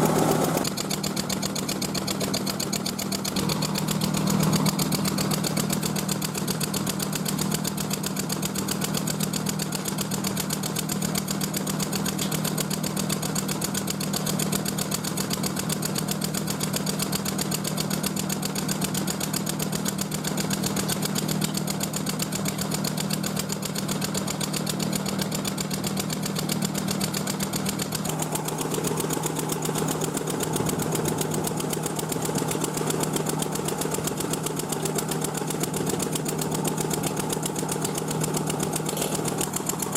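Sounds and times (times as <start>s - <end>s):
motor-driven machine humming: 0.0s - 7.7s, 20.1s - 39.9s.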